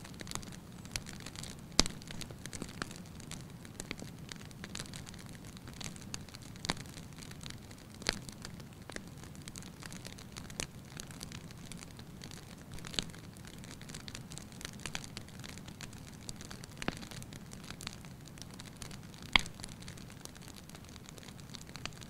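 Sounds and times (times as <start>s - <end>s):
low rumble of flames: 0.0s - 22.0s
wood fire crackling: 0.0s - 22.0s.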